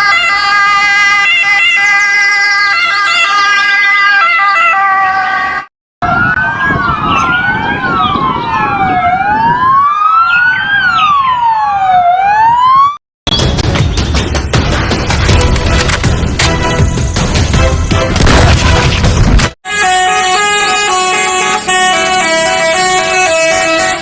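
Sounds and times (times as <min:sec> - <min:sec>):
wailing sirens rising and falling: 0:00.0 - 0:13.0, 0:19.7 - 0:24.0
warbling electronic siren tone: 0:06.0 - 0:13.0.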